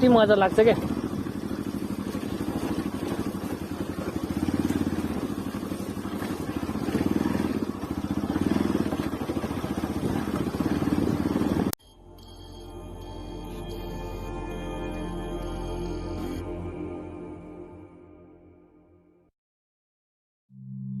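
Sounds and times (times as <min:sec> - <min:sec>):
motorcycle engine revving: 0:00.0 - 0:11.8
soft ambient music: 0:11.8 - 0:18.5.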